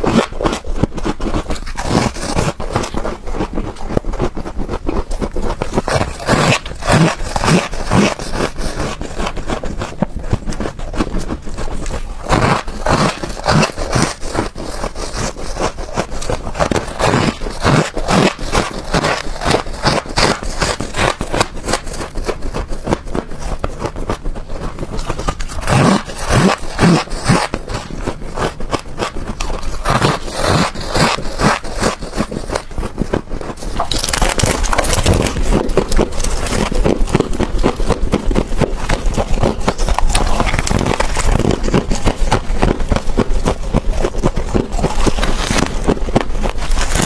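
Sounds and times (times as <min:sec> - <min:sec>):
ice being scraped and crunched: 0:00.0 - 0:47.0.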